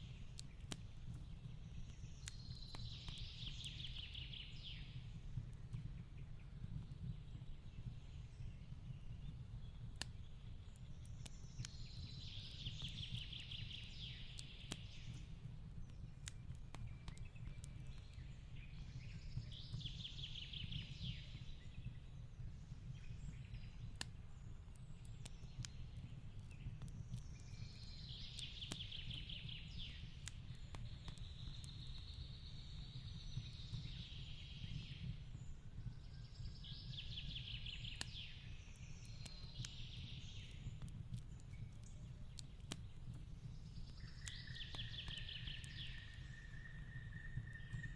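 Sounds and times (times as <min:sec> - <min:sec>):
fireplace crackling: 0:00.0 - 0:04.2, 0:12.8 - 0:19.9, 0:20.7 - 0:34.4, 0:35.0 - 0:47.9.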